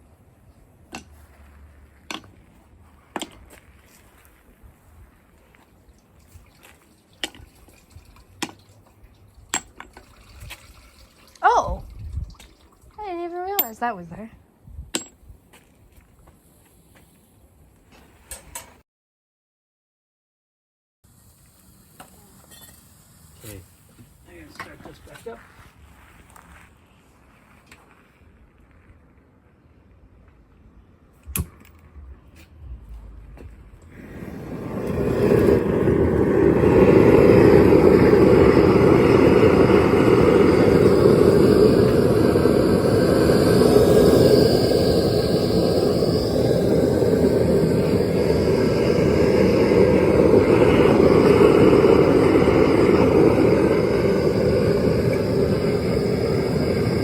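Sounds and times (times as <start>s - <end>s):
propane burner rushing: 21.1s - 25.4s, 33.8s - 57.0s.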